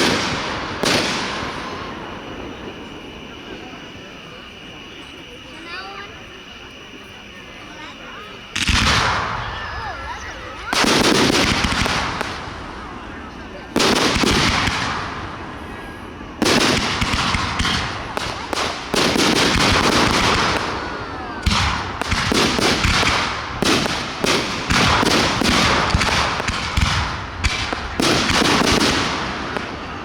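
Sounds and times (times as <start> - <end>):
firework bursts with crackling: 0.0 - 30.0.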